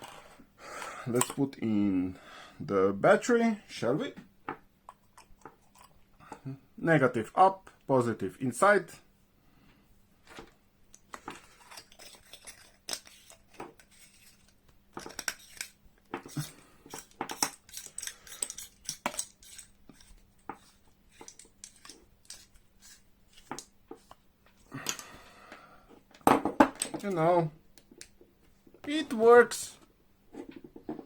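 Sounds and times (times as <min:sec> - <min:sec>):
flashlight parts clicking and clattering: 0:11.0 - 0:22.7.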